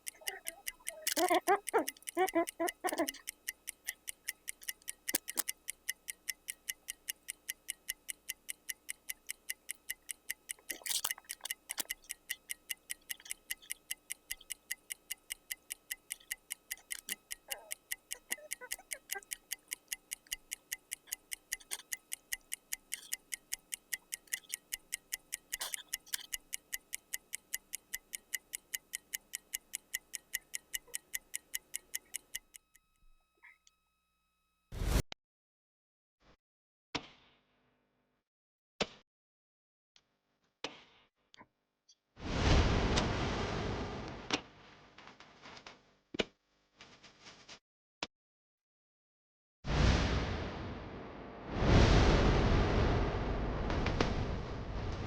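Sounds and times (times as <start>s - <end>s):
clock ticking fast: 0.0s - 32.8s.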